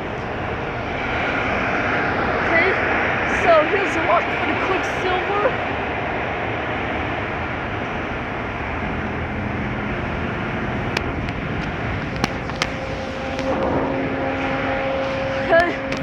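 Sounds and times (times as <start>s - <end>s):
car wash equipment rushing: 0.0s - 16.0s
sharp clicks: 10.6s - 13.8s, 15.5s - 16.0s.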